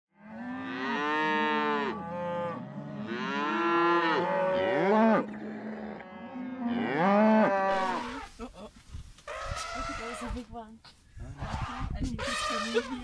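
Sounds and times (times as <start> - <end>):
cattle mooing: 0.2 - 8.2.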